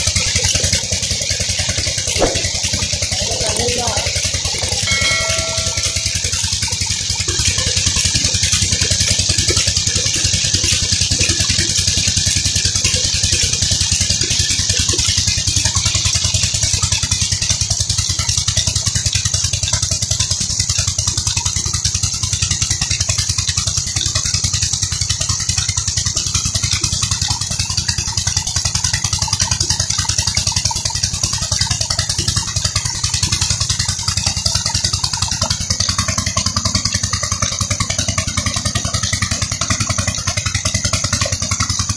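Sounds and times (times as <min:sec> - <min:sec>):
diesel engine running: 0:30.4 - 0:41.9.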